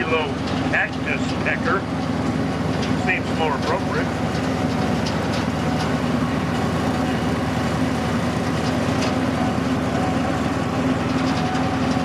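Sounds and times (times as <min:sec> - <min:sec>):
train engine droning: 0:00.0 - 0:12.0.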